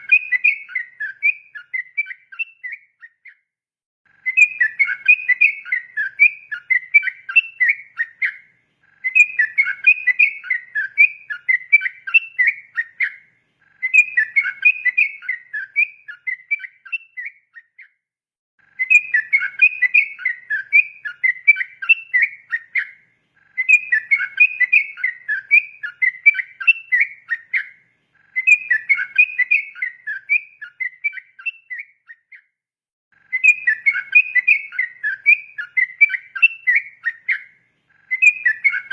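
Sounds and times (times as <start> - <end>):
bird singing bubbly whistled notes: 0.0 - 3.5, 4.1 - 18.0, 18.8 - 32.5, 33.2 - 38.9.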